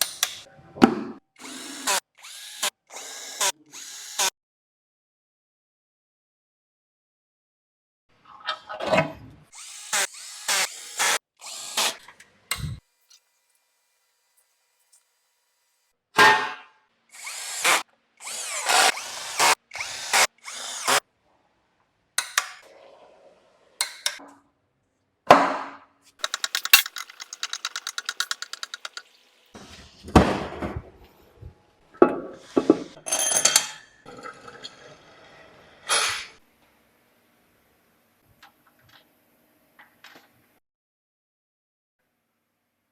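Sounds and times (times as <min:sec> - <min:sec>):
power tool bursts: 0:09.6 - 0:12.0, 0:26.2 - 0:29.0
rapid even clicking: 0:26.2 - 0:29.1.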